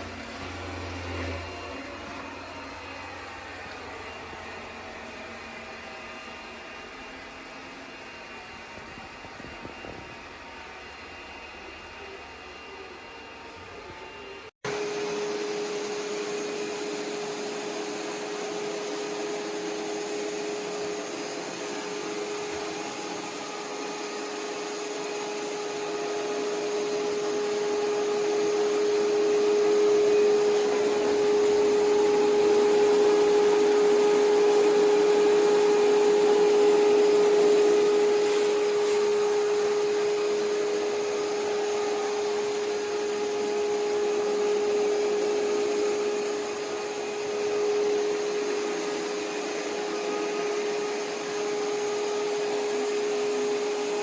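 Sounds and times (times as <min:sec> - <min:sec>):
robot vacuum whining: 0:12.0 - 0:53.9.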